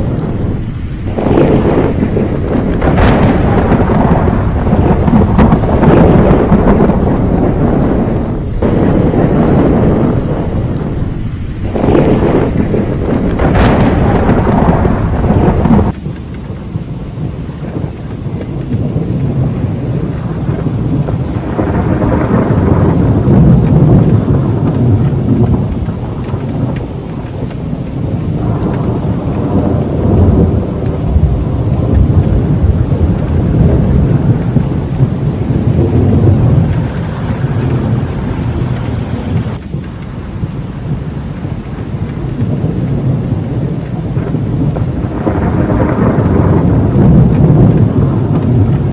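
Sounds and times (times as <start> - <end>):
heavy rain: 0.0 - 48.9
rolling thunder: 0.0 - 48.9.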